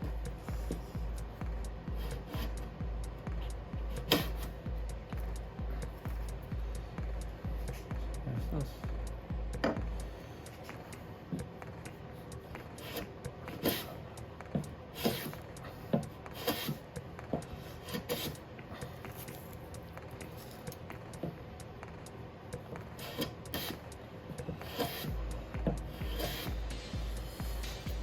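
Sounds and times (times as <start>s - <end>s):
plane blade rasping on wood: 15.0s - 15.4s, 16.3s - 16.8s, 17.8s - 18.4s, 24.5s - 25.1s.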